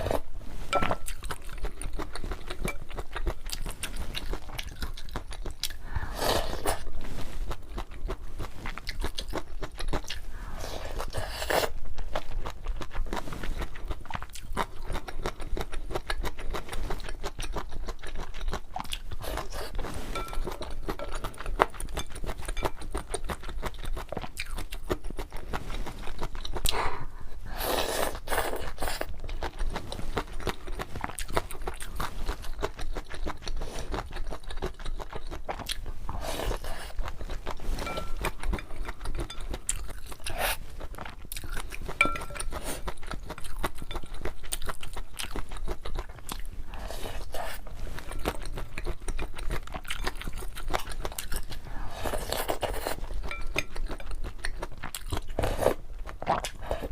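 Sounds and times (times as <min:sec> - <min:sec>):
chewing and biting noodles: 0:00.9 - 0:26.9, 0:27.5 - 0:56.9.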